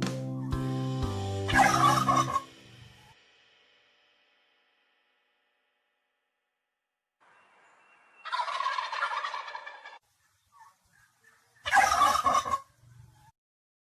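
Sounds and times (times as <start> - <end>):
chicken calling: 1.5 - 3.1, 7.5 - 13.3.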